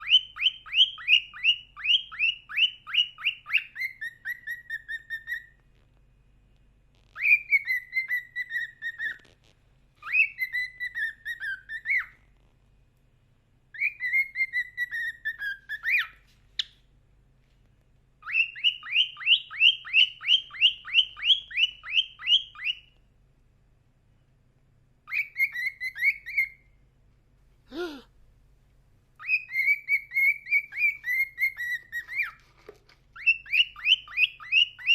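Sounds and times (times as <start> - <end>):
cockatiel whistling: 0.0 - 5.6, 7.2 - 9.3, 10.0 - 12.2, 13.7 - 16.8, 18.2 - 23.0, 25.1 - 26.8, 29.2 - 32.4, 33.2 - 34.9.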